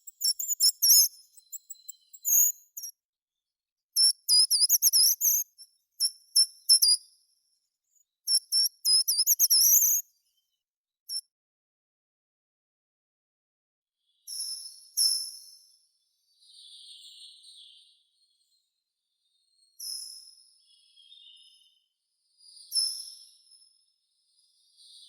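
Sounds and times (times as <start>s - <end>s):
songbird whistling: 0.0s - 2.9s, 4.0s - 7.0s.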